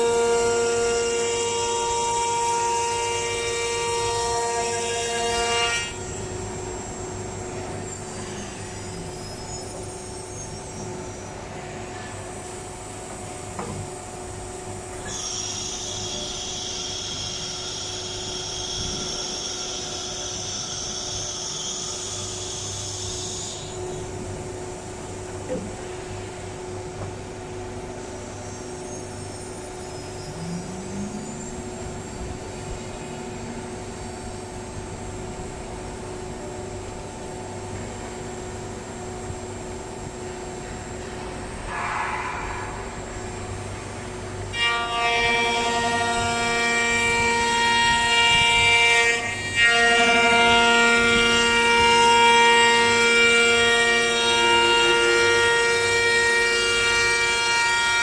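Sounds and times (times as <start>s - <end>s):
steady machine hum: 0.0s - 58.0s
motor whines shifting pitch: 26.6s - 36.1s.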